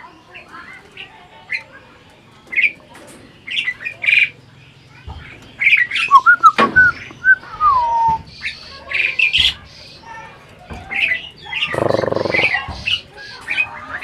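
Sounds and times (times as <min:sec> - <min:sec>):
starling chirps and squawks: 0:00.4 - 0:14.0
bird whistling: 0:05.6 - 0:08.6.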